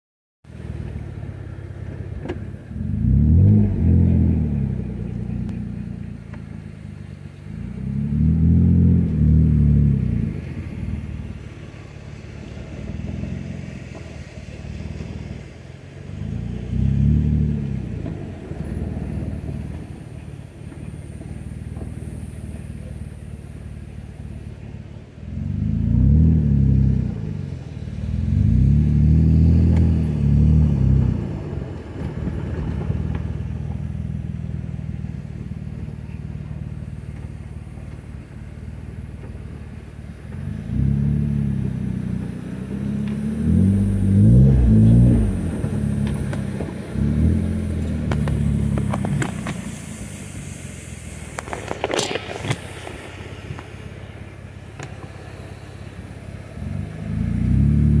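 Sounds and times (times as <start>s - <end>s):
off-road vehicle engine revving: 0.5s - 58.0s.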